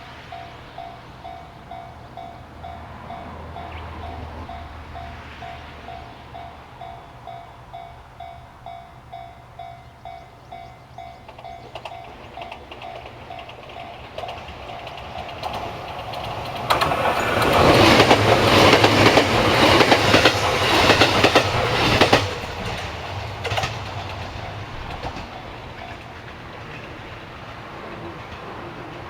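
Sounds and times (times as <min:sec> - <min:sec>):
electric train passing: 0:00.0 - 0:29.0
train wheels clicking over rail joints: 0:00.0 - 0:29.0.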